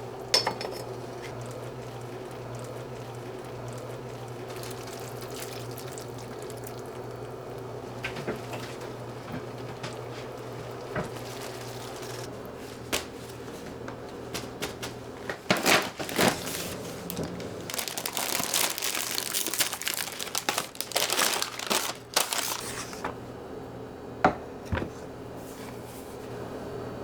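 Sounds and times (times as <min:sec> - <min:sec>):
crinkling and rustling: 0:07.9 - 0:23.2.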